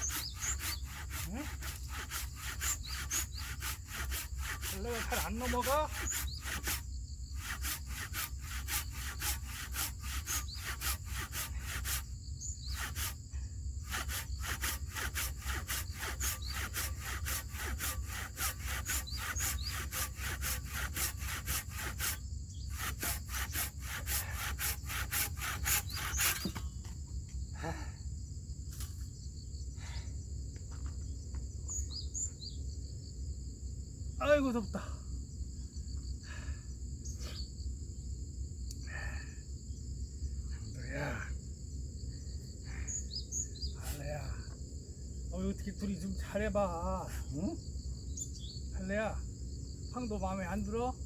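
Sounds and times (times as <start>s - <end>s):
hand saw cutting wood: 0.0s - 13.2s, 13.8s - 26.7s
insects chirring: 0.0s - 51.0s.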